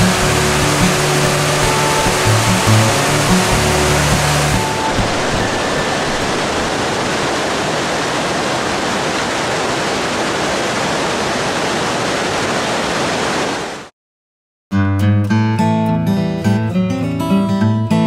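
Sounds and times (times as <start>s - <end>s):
cascading whitewater roar: 0.0s - 13.9s.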